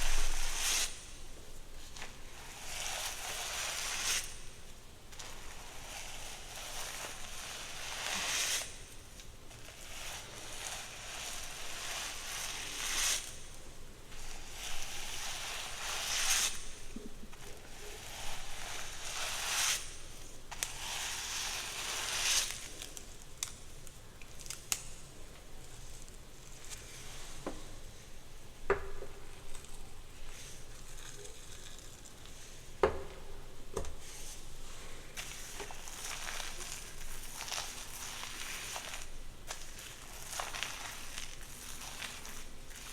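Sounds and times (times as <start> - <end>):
brush strokes through hair: 0.0 - 4.5, 5.1 - 23.0, 26.5 - 28.1, 34.0 - 42.9
hair handling: 34.0 - 42.9.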